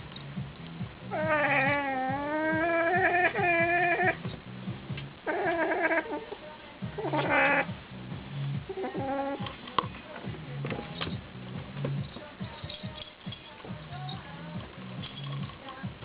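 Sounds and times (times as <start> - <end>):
cat yowling: 1.1 - 4.2, 5.2 - 6.3, 7.0 - 7.7, 8.7 - 9.4.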